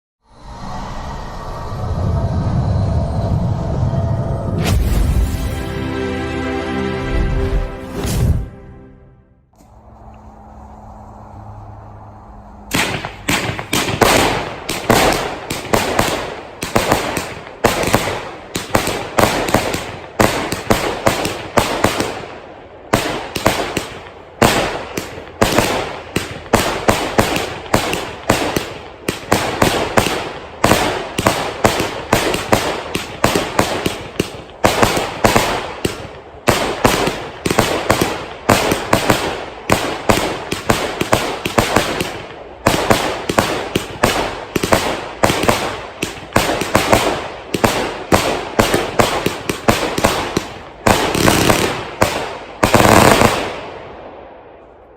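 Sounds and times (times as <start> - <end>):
firework cake firing rapid shots: 12.7 - 53.8.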